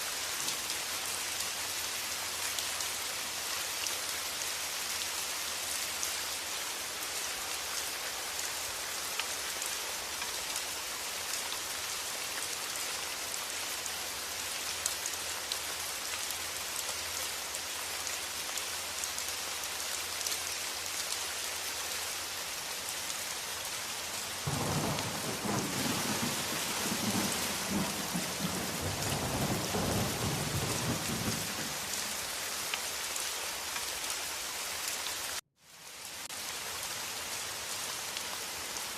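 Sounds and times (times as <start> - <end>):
steady rain: 0.0 - 38.9
thunder rumbling: 24.5 - 31.9.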